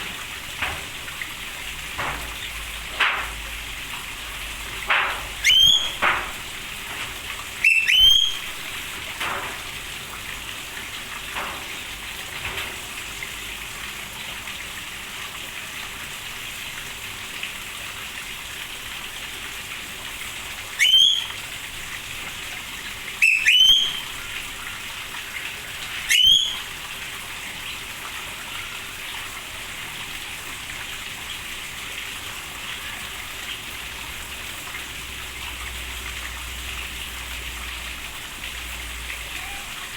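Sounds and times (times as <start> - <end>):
steady rain: 0.0 - 39.9
bird whistled calls: 5.4 - 6.2, 7.6 - 8.7, 20.8 - 21.4, 23.2 - 24.2, 26.0 - 26.7.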